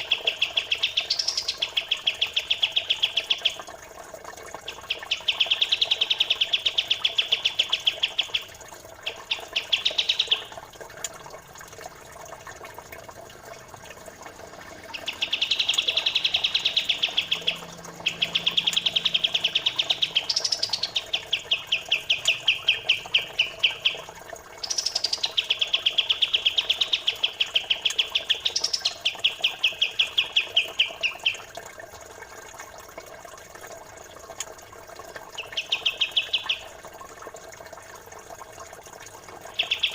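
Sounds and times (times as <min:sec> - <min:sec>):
high bird chirps: 0:00.0 - 0:03.6, 0:09.1 - 0:10.5, 0:14.9 - 0:31.4, 0:35.4 - 0:36.7, 0:39.5 - 0:39.9
trickle of running water: 0:00.0 - 0:39.9.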